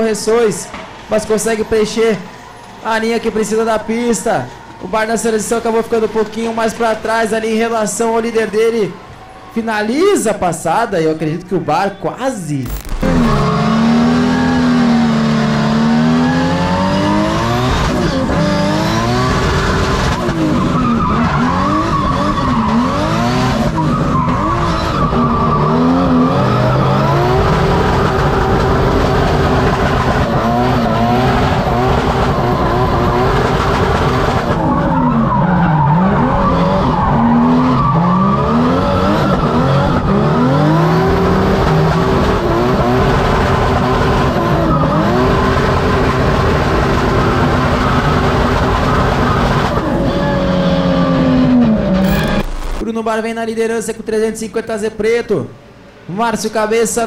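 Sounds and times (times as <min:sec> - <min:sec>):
car engine revving and popping: 0:12.6 - 0:52.8.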